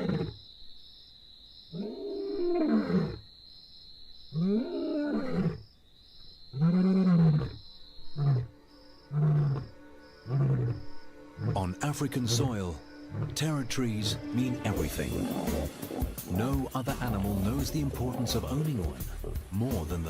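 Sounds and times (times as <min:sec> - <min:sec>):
lion roaring: 0:01.8 - 0:03.2, 0:09.1 - 0:13.4, 0:14.7 - 0:19.6
lion grunting: 0:09.1 - 0:13.7, 0:14.7 - 0:20.0.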